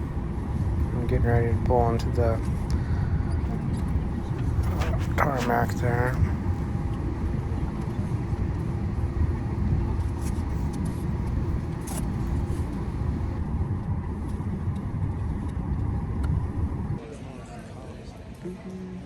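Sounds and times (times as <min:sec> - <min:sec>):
jet engines idling: 0:00.0 - 0:13.4
wheels rumbling on taxiway: 0:00.0 - 0:13.4
faint steady hum: 0:00.0 - 0:13.5.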